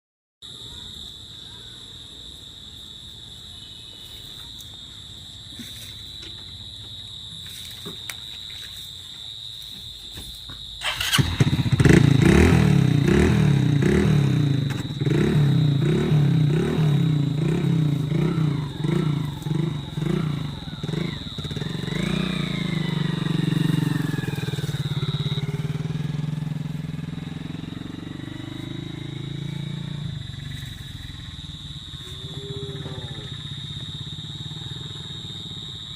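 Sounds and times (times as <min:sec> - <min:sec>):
motorcycle engine starting and revving: 0:10.8 - 0:35.9.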